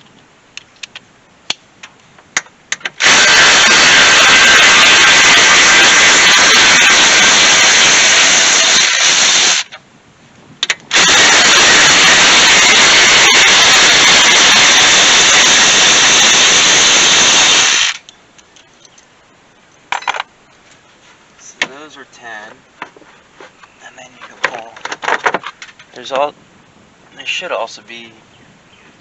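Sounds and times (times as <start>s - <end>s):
power tool spinning out bolts: 2.9s - 9.7s, 10.9s - 18.1s.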